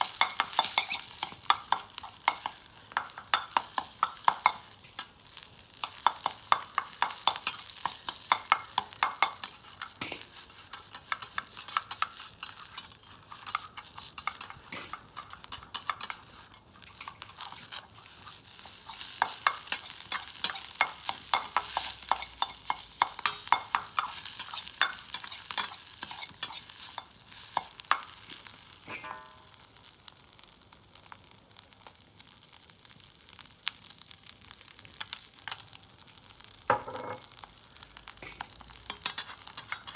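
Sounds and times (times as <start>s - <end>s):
metal spatula scraping a pan: 0.0s - 29.4s, 38.2s - 39.9s
food sizzling in a wok: 0.0s - 39.9s.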